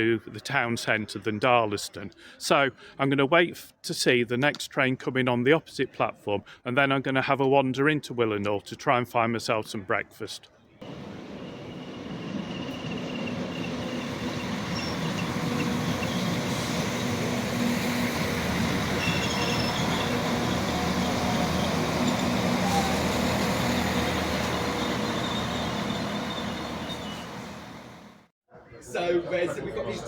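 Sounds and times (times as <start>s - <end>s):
low engine hum: 10.8s - 28.2s
train rail noise: 10.8s - 28.3s.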